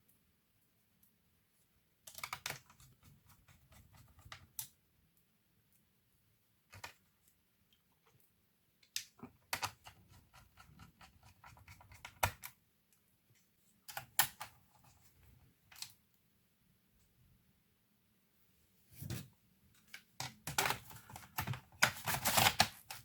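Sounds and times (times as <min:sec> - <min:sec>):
laptop parts clicking and tapping: 0:02.0 - 0:04.8, 0:06.7 - 0:07.0, 0:08.8 - 0:12.6, 0:13.9 - 0:14.6, 0:19.8 - 0:23.0.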